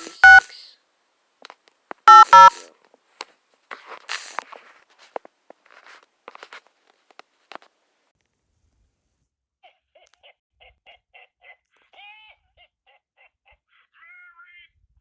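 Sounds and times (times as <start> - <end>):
phone keypad touch-tone beeps: 0.0 - 0.4, 2.1 - 2.6.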